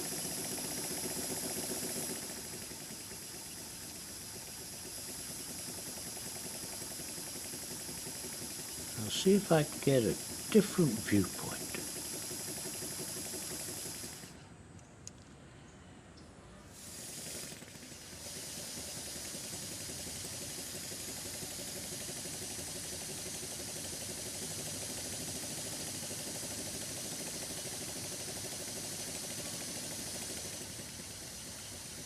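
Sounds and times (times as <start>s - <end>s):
model steam engine hissing air: 0.0s - 14.4s, 16.6s - 32.0s.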